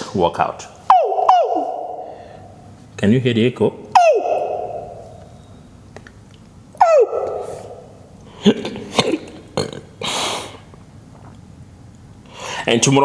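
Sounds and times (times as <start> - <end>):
man whooping with echo: 0.9 - 2.4, 3.9 - 5.2, 6.8 - 7.8.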